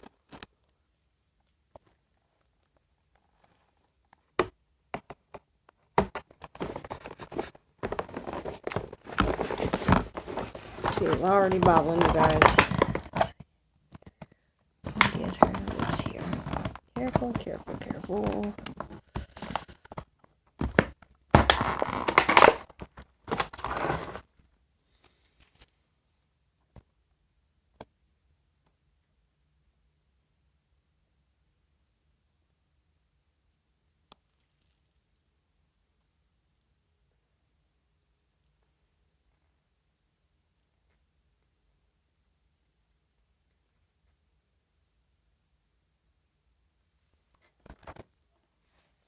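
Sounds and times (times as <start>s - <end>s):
packaging crinkling and rustling: 6.1s - 13.4s, 14.9s - 24.3s.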